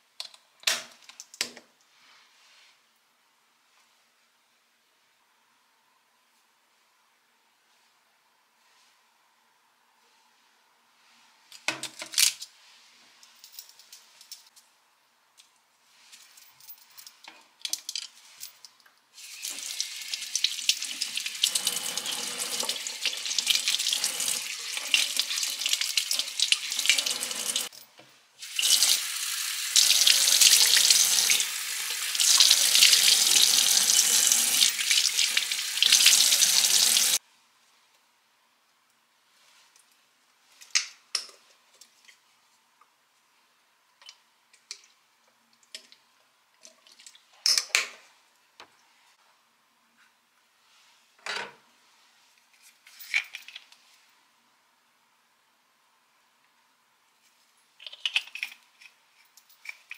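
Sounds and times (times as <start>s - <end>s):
tap water running into sink: 19.4s - 27.7s, 28.4s - 37.2s.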